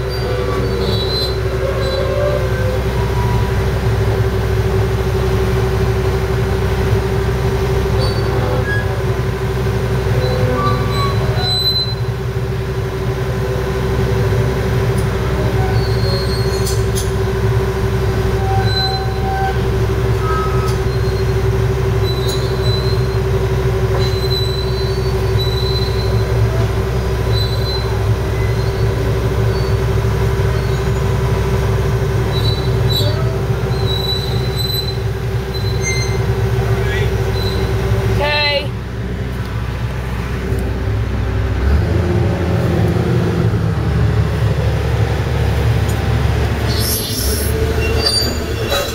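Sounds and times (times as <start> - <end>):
excavator diesel engine whining: 0.0 - 48.9
undercarriage squeaks: 15.6 - 17.2, 23.9 - 26.3, 32.3 - 36.3, 37.3 - 37.8, 46.7 - 48.9.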